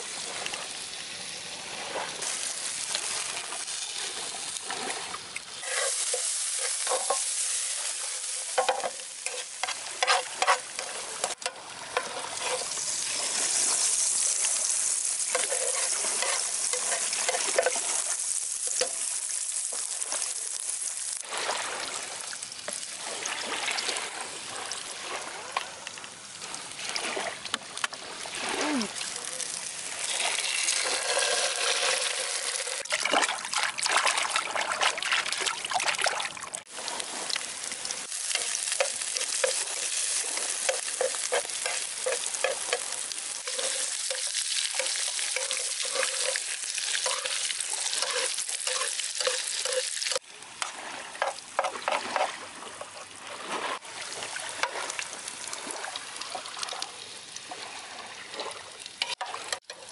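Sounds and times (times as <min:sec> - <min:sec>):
onions and egg sizzling in oil: 0:00.0 - 0:24.7, 0:28.1 - 0:53.1, 0:53.7 - 0:59.9
utensil scraping a pan: 0:05.6 - 0:13.9, 0:15.3 - 0:18.1, 0:30.1 - 0:32.9, 0:38.3 - 0:50.2, 0:51.2 - 0:53.0.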